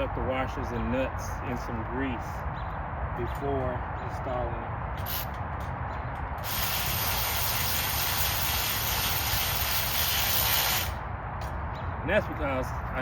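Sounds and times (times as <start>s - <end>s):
steady spraying hiss: 6.4s - 11.0s.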